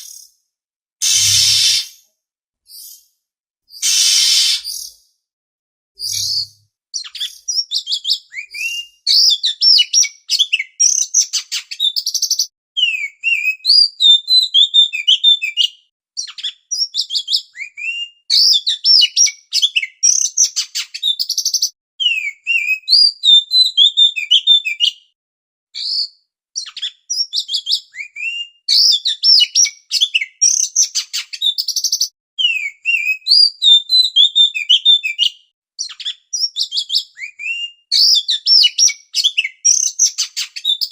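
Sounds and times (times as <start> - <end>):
magpie-robin singing: 3.8 - 5.0, 6.0 - 25.0, 25.8 - 40.9.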